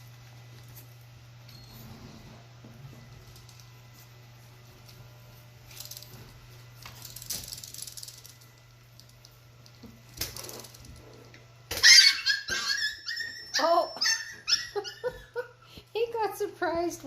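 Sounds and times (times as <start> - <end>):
low steady hum: 0.0 - 17.0
puppy yelping: 11.7 - 15.4.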